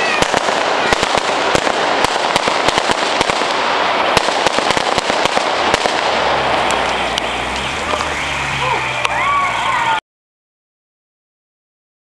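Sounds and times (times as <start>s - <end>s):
fireworks bangs and crackles: 0.0s - 10.0s
steady hiss: 3.4s - 10.0s.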